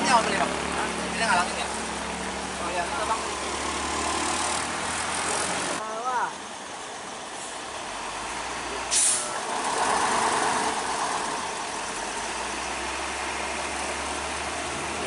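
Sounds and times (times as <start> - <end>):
truck engine running: 6.4 - 15.0
short sharp hiss: 8.9 - 9.4.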